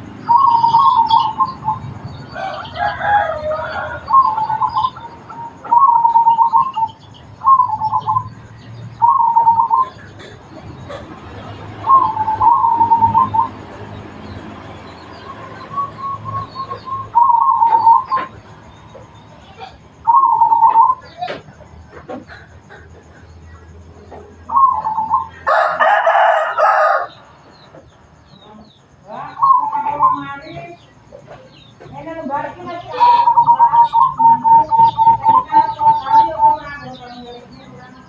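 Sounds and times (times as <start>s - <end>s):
small birds chirping: 0.0s - 38.0s
dove cooing: 0.3s - 8.4s, 9.0s - 13.8s, 15.3s - 23.3s, 24.1s - 27.1s, 29.2s - 30.6s, 32.8s - 37.1s
rooster crowing: 2.2s - 5.9s, 24.5s - 27.4s.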